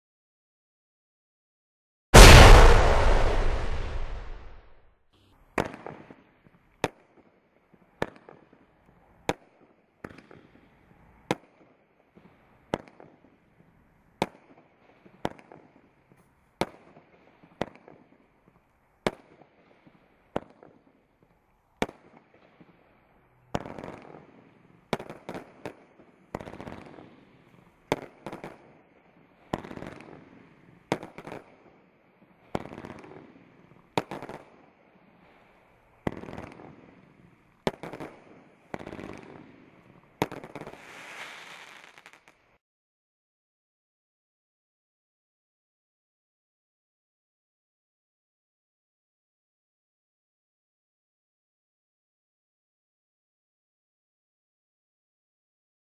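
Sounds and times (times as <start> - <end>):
firework barrage bangs and crackle: 2.2 - 4.7, 23.6 - 42.4.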